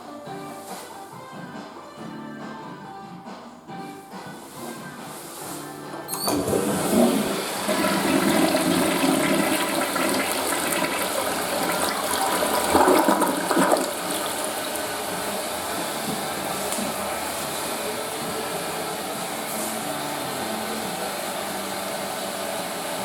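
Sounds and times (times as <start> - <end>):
toilet flush click: 6.1 - 17.6
toilet water rushing: 6.1 - 23.0.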